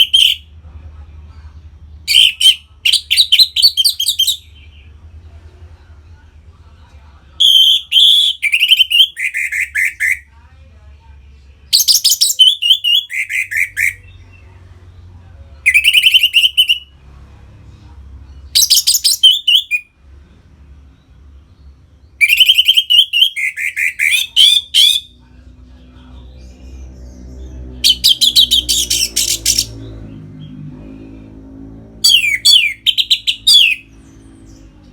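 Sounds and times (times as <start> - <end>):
faint low hum: 0.0 - 34.9.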